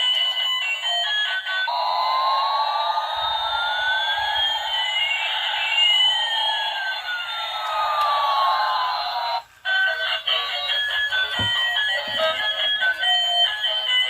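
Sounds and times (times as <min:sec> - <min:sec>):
electronic whistling sweep tones: 0:01.9 - 0:07.6.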